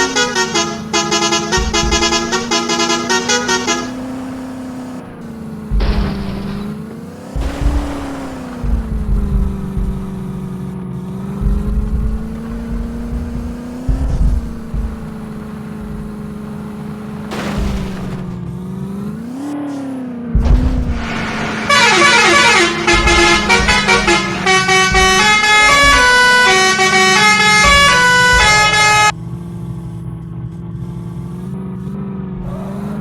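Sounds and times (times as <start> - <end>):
musical horn playing tune: 0.0 - 4.6, 21.5 - 29.1
tractor engine revving: 0.0 - 33.0.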